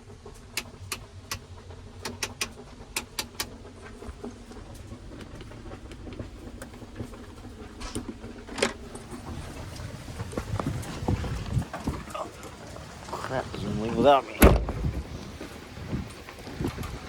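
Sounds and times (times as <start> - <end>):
engine idling: 0.0 - 17.0
sharp clicks and knocks: 0.3 - 9.3.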